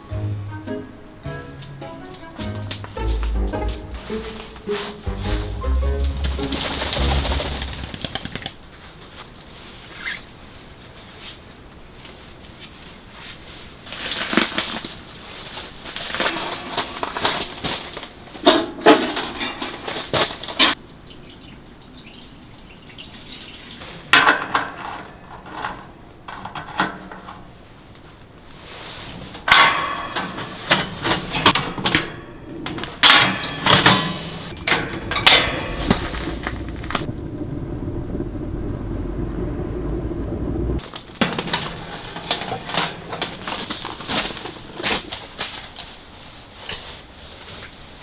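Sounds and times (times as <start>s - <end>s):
objects clattering and knocking: 2.2s - 8.6s, 13.9s - 20.8s, 22.9s - 27.6s, 28.5s - 37.1s, 40.8s - 46.0s.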